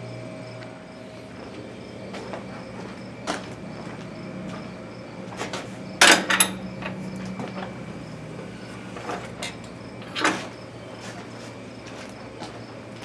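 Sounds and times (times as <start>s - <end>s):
steady low hum: 0.0s - 12.9s
metal clanks and knocks: 5.4s - 7.8s, 9.0s - 10.6s.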